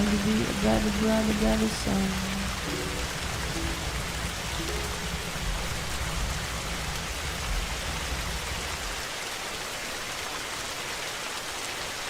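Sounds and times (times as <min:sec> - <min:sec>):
low rumble: 0:00.0 - 0:09.0
steady rain: 0:00.0 - 0:12.0.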